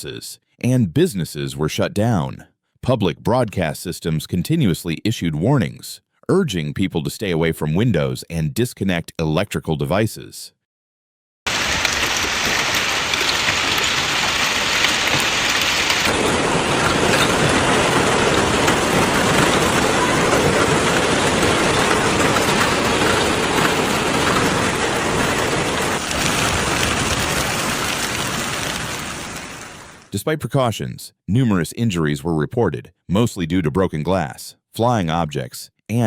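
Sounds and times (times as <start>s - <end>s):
heavy rain pelting: 11.5s - 30.1s.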